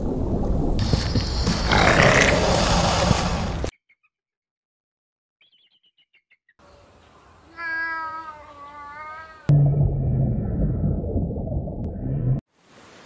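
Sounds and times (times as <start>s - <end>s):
faint high bird chirps: 5.4s - 6.8s.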